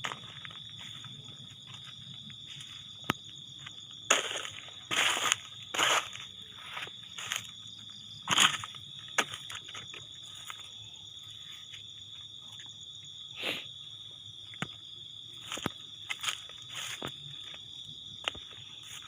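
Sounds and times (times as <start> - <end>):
footsteps crunching dry leaves: 0.0 - 10.7, 15.3 - 19.0
insect chorus: 0.0 - 19.0.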